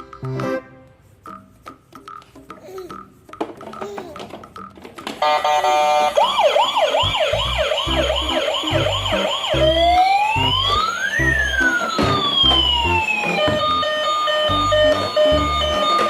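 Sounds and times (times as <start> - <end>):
emergency vehicle siren: 5.2 - 16.0
rhythmic low thumping: 7.0 - 16.0.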